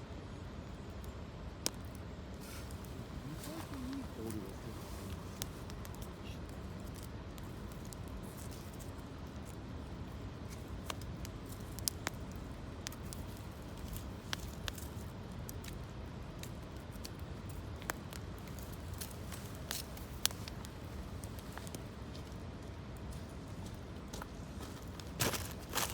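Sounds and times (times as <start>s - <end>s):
campfire crackling and popping: 0.8s - 25.9s.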